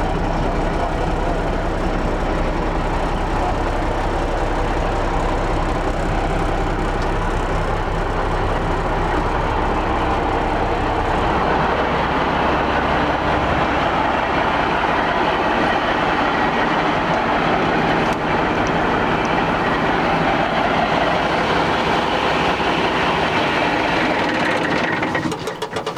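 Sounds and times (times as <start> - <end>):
truck diesel engine running: 0.0 - 25.9.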